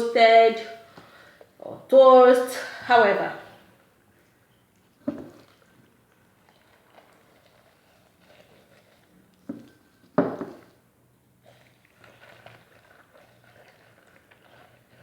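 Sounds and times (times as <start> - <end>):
knocks on a kitchen surface: 5.1 - 5.4, 10.2 - 10.6.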